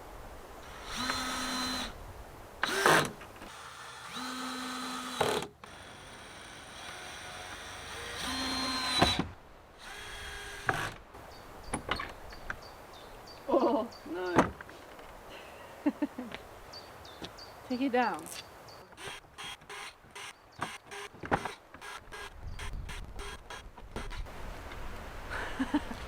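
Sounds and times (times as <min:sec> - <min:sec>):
power drill running: 0:00.7 - 0:02.0, 0:02.6 - 0:09.2, 0:09.8 - 0:11.0, 0:19.0 - 0:24.2.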